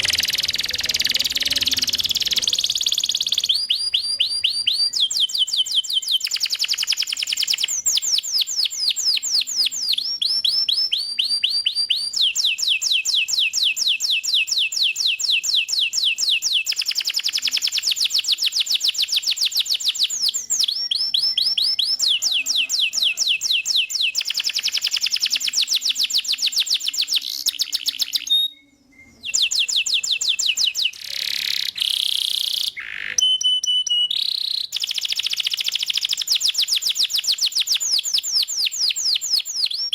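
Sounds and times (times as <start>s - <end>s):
canary singing in fast trills: 0.0s - 39.9s.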